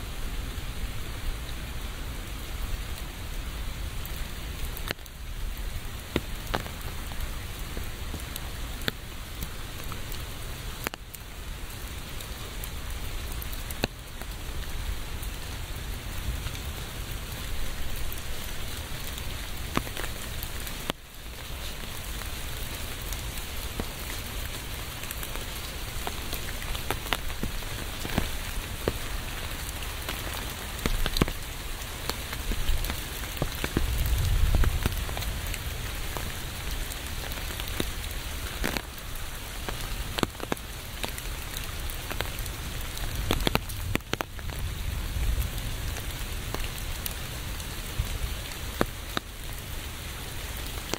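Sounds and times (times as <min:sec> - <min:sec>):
steady rain hiss: 0:00.0 - 0:50.9
raindrops ticking: 0:00.1 - 0:50.9.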